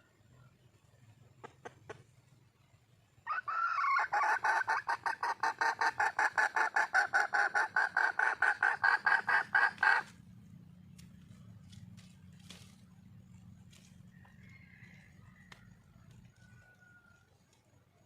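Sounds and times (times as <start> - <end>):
hen clucking call: 3.3 - 10.2.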